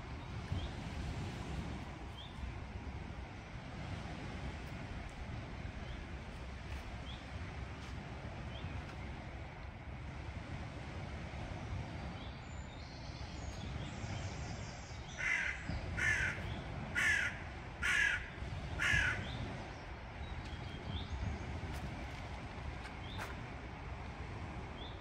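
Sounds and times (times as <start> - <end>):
wind: 0.0 - 25.0
bird cawing harshly: 15.2 - 19.2.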